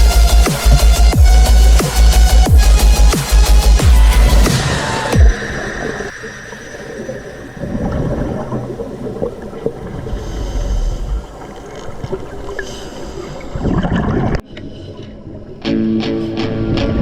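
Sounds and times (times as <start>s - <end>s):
underwater wash of water: 4.0s - 15.5s
diver's exhaled bubbles rumbling: 5.2s - 12.7s.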